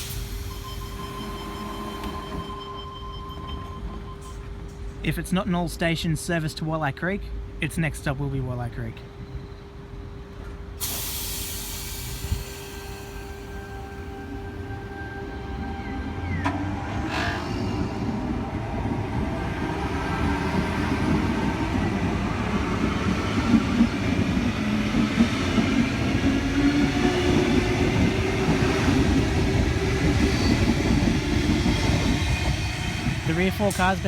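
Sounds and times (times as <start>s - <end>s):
rail rumble: 9.1s - 34.0s.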